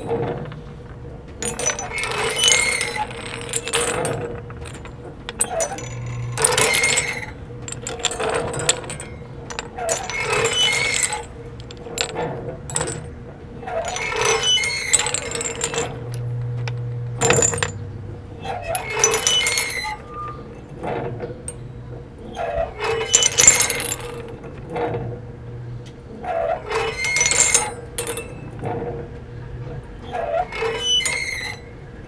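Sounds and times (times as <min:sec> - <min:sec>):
metallic clinking and jingling: 0:00.0 - 0:13.1, 0:13.7 - 0:16.4, 0:17.2 - 0:18.0, 0:18.7 - 0:20.3, 0:22.9 - 0:24.6, 0:26.7 - 0:28.6.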